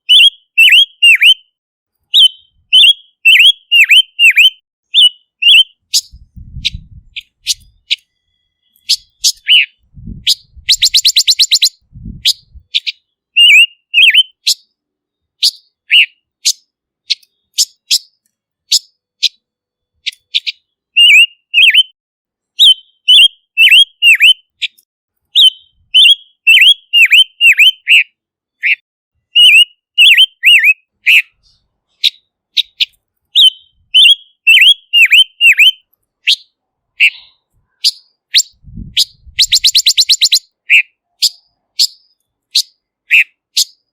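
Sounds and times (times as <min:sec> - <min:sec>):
bird whistled notes: 0:00.0 - 0:14.7, 0:15.4 - 0:19.4, 0:20.0 - 0:22.0, 0:22.6 - 0:24.8, 0:25.4 - 0:43.9
bird rattling trills: 0:10.3 - 0:12.5, 0:39.0 - 0:40.4.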